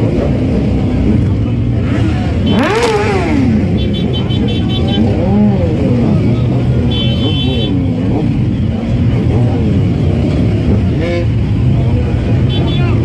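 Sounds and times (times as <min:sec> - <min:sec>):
car and motorcycle engines running: 0:00.0 - 0:13.0.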